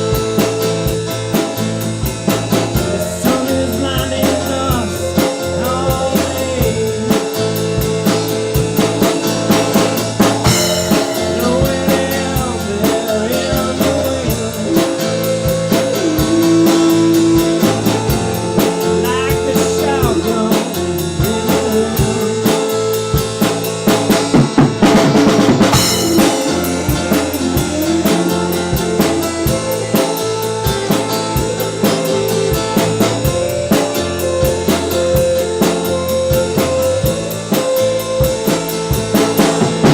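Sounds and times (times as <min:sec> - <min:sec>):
bass guitar: 0:00.0 - 0:39.9
drum and cymbal hits: 0:00.0 - 0:39.9
drum kit beat: 0:00.0 - 0:39.9
electric guitar bending notes: 0:00.0 - 0:39.9.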